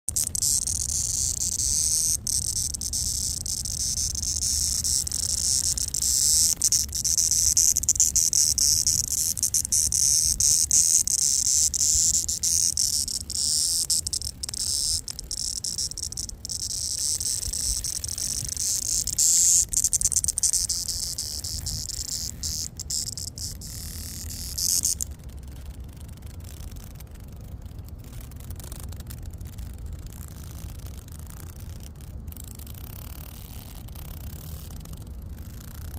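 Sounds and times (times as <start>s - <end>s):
cicada buzzing: 0.1s - 25.2s.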